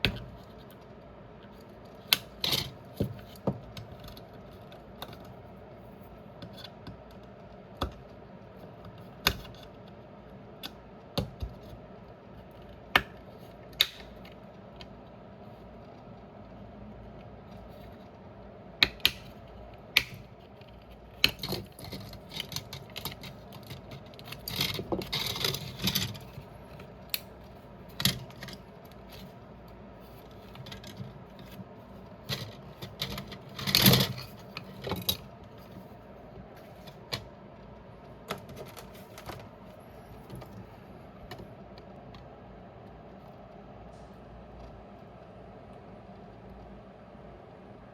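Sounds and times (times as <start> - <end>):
low steady hum: 0.0 - 47.9
clicks and taps of small parts: 12.6 - 14.9, 18.8 - 19.4, 20.0 - 26.2.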